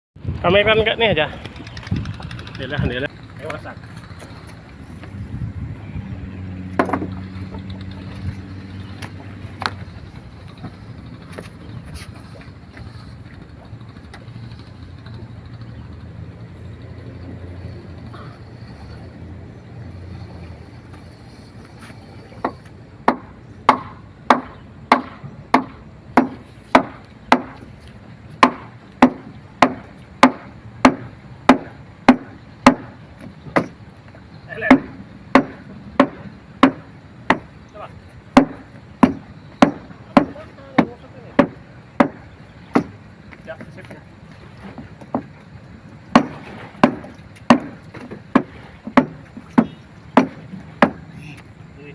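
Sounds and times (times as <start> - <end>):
ferry engine humming: 0.2 - 51.9
sharp knocks: 6.7 - 7.8, 22.4 - 27.7, 28.4 - 33.8, 34.6 - 37.5, 38.3 - 43.0, 46.1 - 51.0.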